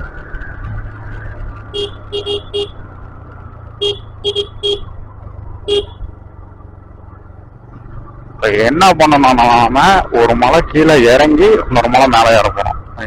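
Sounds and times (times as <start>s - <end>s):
motorbike engine: 0.0s - 13.0s
wind rumble: 0.0s - 13.0s
vehicle horn toots: 1.7s - 2.8s, 3.8s - 4.9s, 5.6s - 6.0s.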